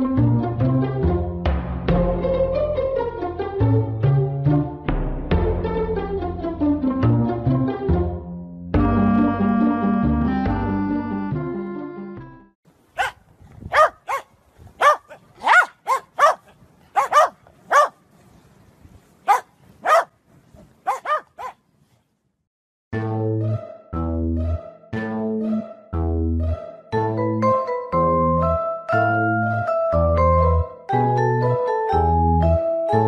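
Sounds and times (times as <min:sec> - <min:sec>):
bass line: 0:00.0 - 0:12.5, 0:23.0 - 0:32.6
dog barking: 0:13.0 - 0:18.0, 0:19.2 - 0:20.1, 0:20.8 - 0:21.6
mallet-toned melody: 0:23.0 - 0:33.0.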